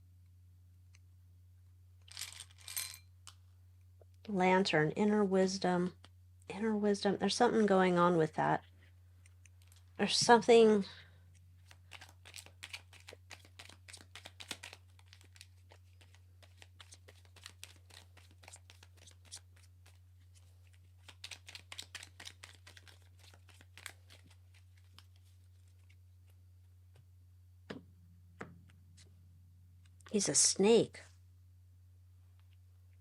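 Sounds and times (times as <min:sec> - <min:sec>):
cards being shuffled: 0:09.4 - 0:09.9, 0:11.3 - 0:26.4.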